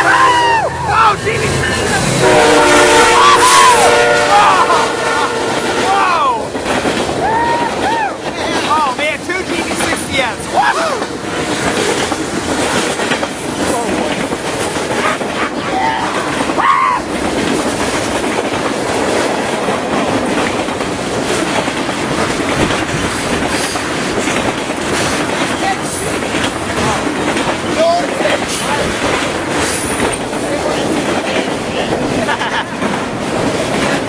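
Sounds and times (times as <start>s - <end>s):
freight train rushing past: 0.0s - 34.0s
wheels clattering on rails: 0.0s - 34.0s.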